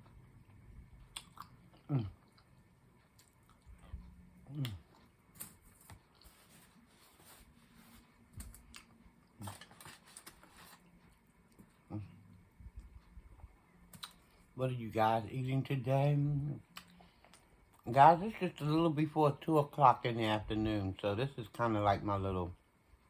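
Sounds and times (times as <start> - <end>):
person chewing: 0.0 - 7.1, 8.4 - 13.2, 13.9 - 14.5
mouth clicks and smacks: 1.0 - 4.9, 13.9 - 14.3.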